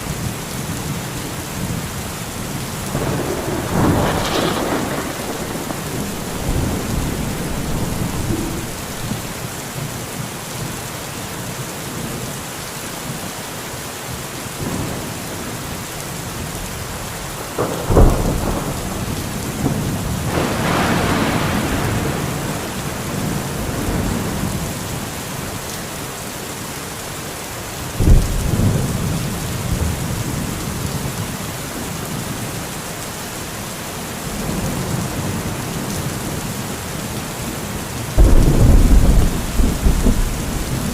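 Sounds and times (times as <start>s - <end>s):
steady rain: 0.0s - 40.9s
rolling thunder: 2.8s - 9.5s, 17.3s - 24.6s, 28.0s - 30.6s, 38.1s - 40.9s
sharp loud thunderclap: 2.9s - 9.4s, 17.4s - 24.4s, 28.0s - 29.2s, 38.2s - 40.9s.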